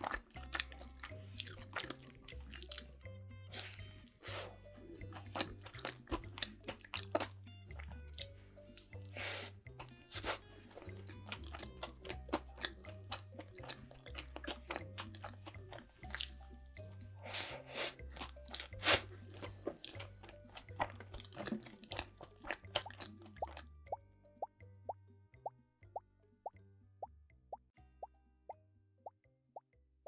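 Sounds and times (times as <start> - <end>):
background music with bass line: 0.0 - 30.0
crunchy sandwich chewing: 18.2 - 23.6.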